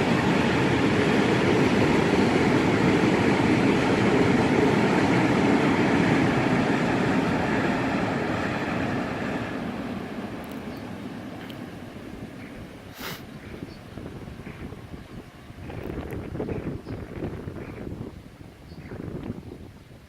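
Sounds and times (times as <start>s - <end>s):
freight train rolling past: 0.0s - 20.0s.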